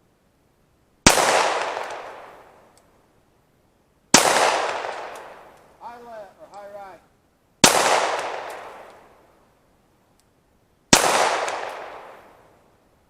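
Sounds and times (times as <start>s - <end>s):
pistol shots with echo: 1.1s - 2.4s, 4.1s - 5.5s, 7.6s - 9.1s, 10.9s - 12.4s.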